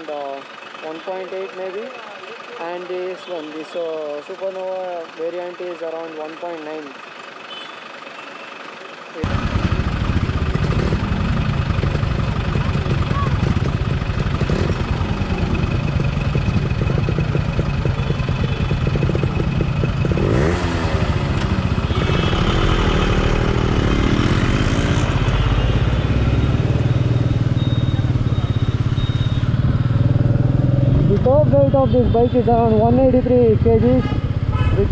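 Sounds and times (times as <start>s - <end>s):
motorcycle engine running: 9.1s - 34.9s.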